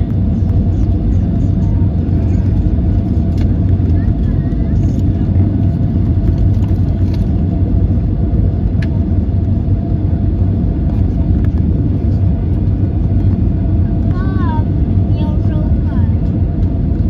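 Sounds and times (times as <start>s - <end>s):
airplane cabin rumble: 0.0s - 17.0s.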